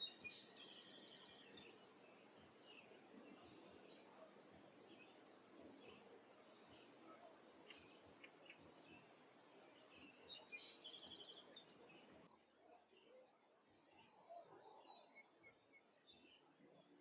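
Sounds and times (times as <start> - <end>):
songbird trill: 0.0 - 12.2
faint bird chirps: 0.0 - 13.2, 13.8 - 17.0.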